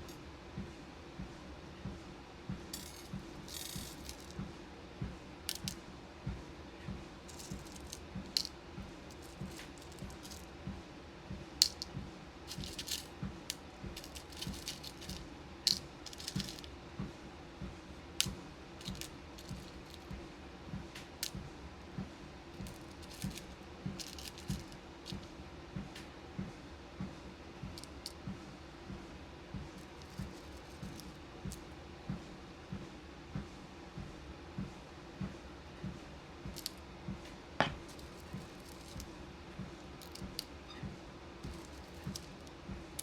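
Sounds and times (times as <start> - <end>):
beads clicking and rattling: 2.7 - 4.4, 5.5 - 5.8, 7.3 - 10.5, 11.6 - 11.9, 12.5 - 16.7, 18.2 - 20.1, 22.6 - 25.3, 27.8 - 28.2, 29.8 - 31.6, 36.6 - 36.8, 37.8 - 39.1, 40.0 - 40.5, 41.4 - 43.0.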